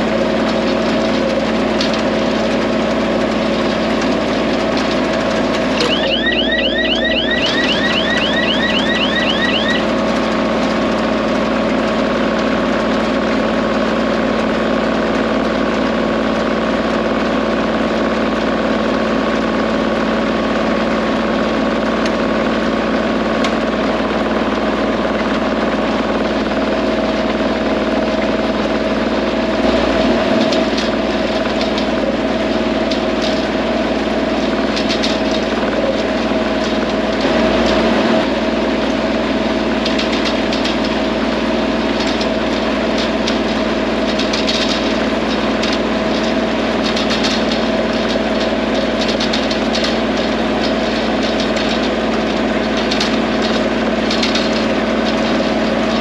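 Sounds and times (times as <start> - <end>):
diesel tractor engine running: 0.0 - 56.0
short rising chirps: 5.8 - 9.9.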